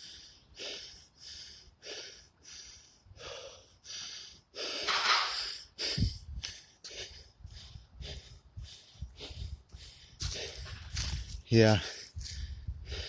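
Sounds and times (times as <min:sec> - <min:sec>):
man breathing hard: 0:00.0 - 0:13.0.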